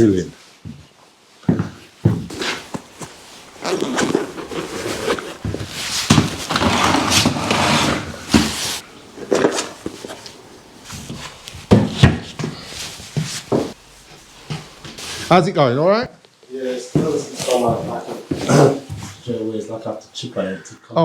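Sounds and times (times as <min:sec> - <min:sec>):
hand tool scraping plaster: 0:02.3 - 0:13.8.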